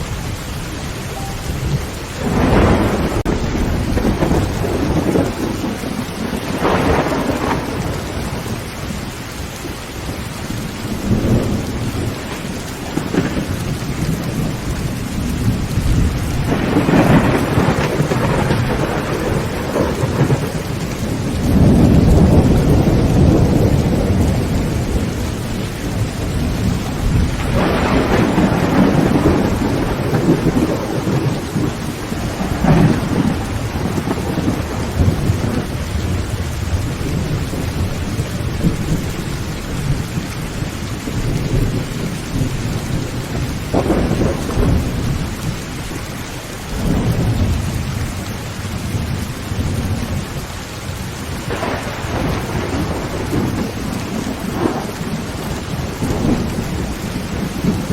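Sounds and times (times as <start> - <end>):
heavy rain on a tin roof: 0.0 - 57.9
thunder rumbling: 0.0 - 57.9.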